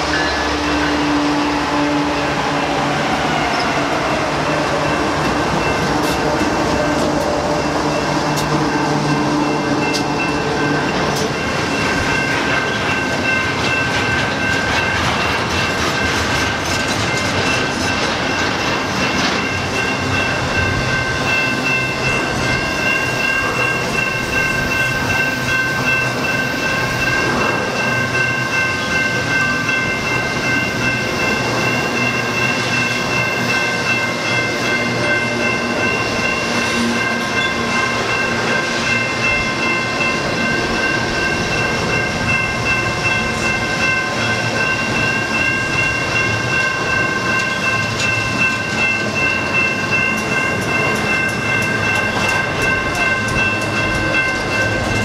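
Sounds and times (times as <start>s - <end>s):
diesel locomotive hum: 0.0s - 55.0s
freight wagons rumbling on rails: 0.0s - 55.0s.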